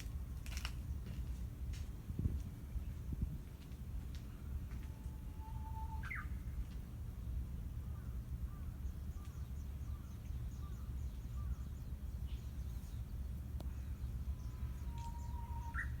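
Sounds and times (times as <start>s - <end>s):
low background rumble: 0.0s - 16.0s
warbler singing: 7.9s - 16.0s.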